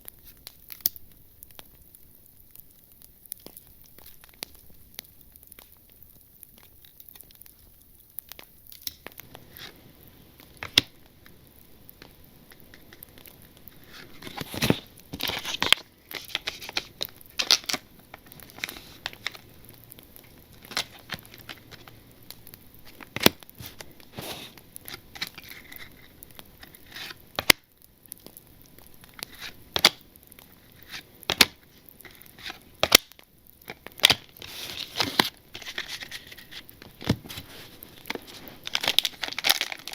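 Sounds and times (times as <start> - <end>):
wrapper crinkling and tearing: 0.0 - 9.8, 10.4 - 39.9.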